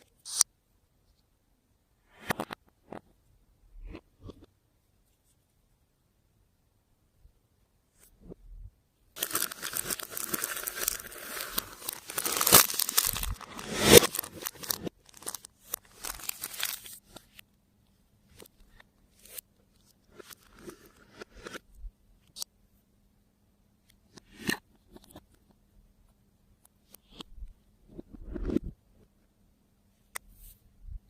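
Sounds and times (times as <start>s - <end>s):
plastic packaging crinkling: 9.2s - 17.1s.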